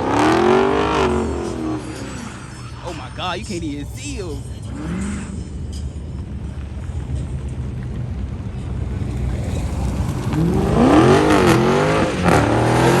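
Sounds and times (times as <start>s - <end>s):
car engine revving: 9.1s - 13.0s.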